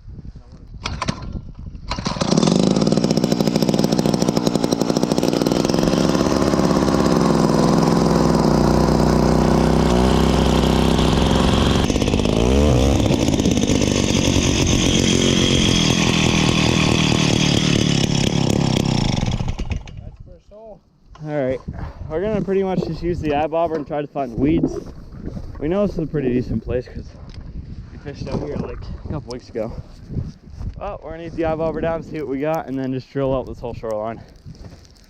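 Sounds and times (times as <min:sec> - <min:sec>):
ice auger engine running: 0:01.9 - 0:20.0.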